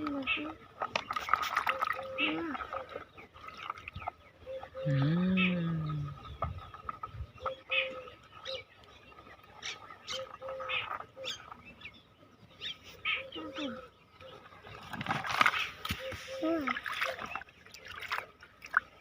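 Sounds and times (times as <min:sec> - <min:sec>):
birds chirping: 0:00.0 - 0:19.0
brief human vocal sound: 0:04.8 - 0:06.2.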